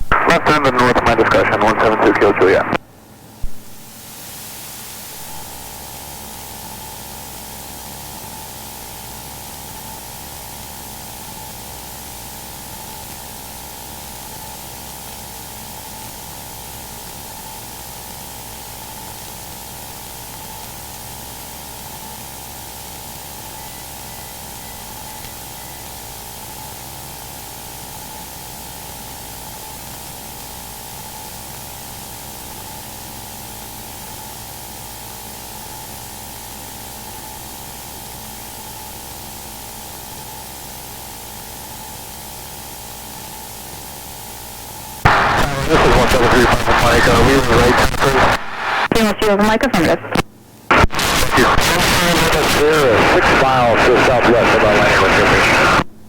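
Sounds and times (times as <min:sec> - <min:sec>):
radio static hiss: 0:00.0 - 0:56.0
faint steady tone: 0:15.6 - 0:30.2.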